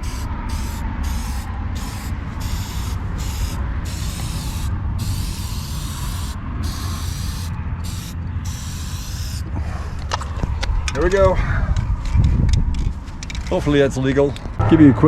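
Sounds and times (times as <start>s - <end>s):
spray paint can hissing: 0.0s - 9.5s
low rumble: 14.3s - 15.0s.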